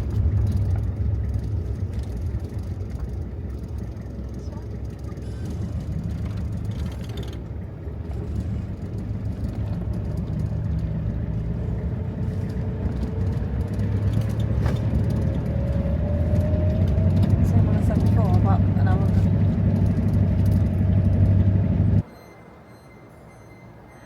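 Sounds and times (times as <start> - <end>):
car engine: 0.0 - 24.0
road noise inside car: 0.0 - 24.0.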